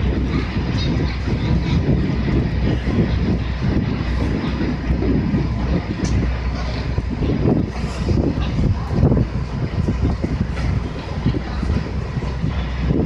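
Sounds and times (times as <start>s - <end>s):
ship engines droning: 0.0s - 13.0s
uneven rumble: 0.0s - 13.0s.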